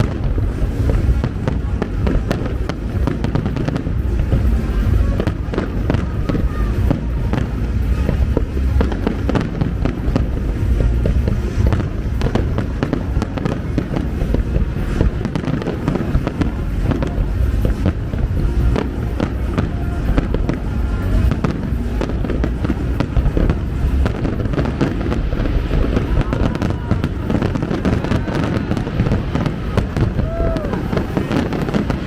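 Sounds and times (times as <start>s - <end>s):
deep rumble: 0.0s - 32.0s
fireworks bangs and crackles: 0.0s - 32.0s
music playing: 0.0s - 32.0s.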